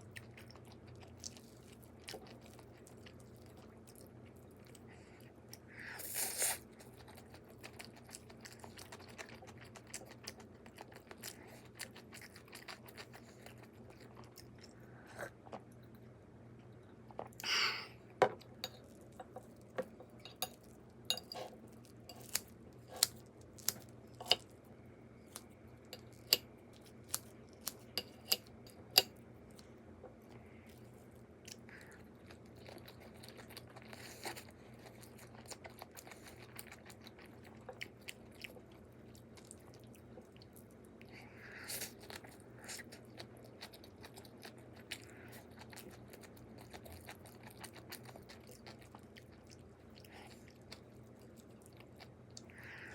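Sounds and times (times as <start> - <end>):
person chewing food: 0.0 - 17.5, 18.4 - 24.5, 25.2 - 52.9.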